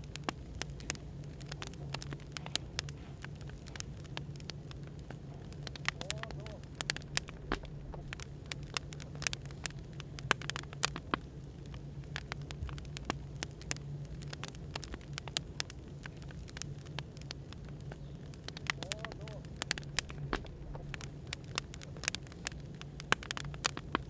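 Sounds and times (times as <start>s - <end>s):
low background white noise: 0.0s - 24.0s
wood fire crackling and popping: 0.0s - 24.0s.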